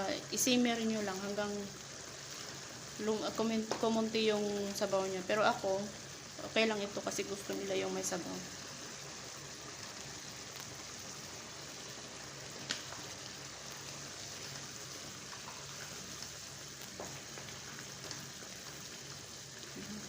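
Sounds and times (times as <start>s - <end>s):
food sizzling and bubbling in pan: 0.0s - 20.0s.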